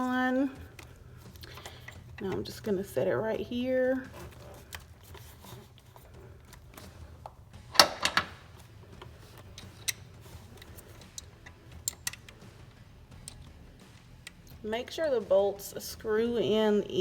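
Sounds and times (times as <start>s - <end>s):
metal parts clicking and tapping: 0.0s - 3.0s, 4.0s - 15.1s.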